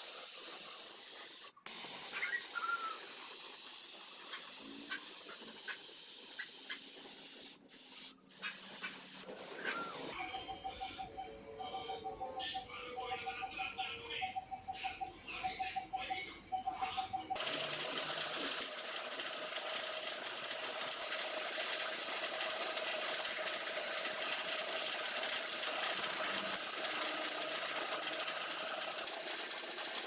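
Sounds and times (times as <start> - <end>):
loud hissing spray: 0.0 - 10.2, 17.4 - 30.0.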